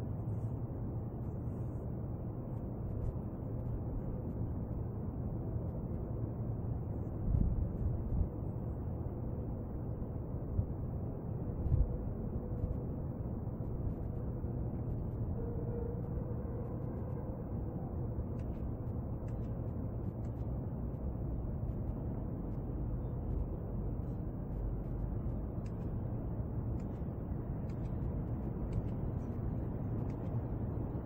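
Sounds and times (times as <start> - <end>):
low outdoor rumble: 0.0 - 31.0
faint ticks: 18.3 - 22.7.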